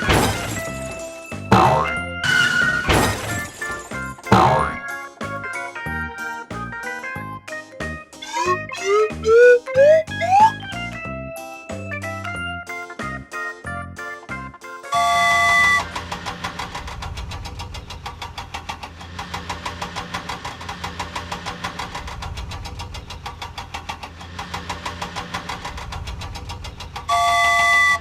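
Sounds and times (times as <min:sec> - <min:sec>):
cartoon engine pulsing: 0:01.5 - 0:02.5, 0:04.3 - 0:04.8, 0:08.2 - 0:10.8
cartoon horn honk: 0:01.6 - 0:02.6, 0:04.3 - 0:04.8, 0:08.2 - 0:10.6, 0:15.0 - 0:15.9, 0:27.1 - 0:28.0.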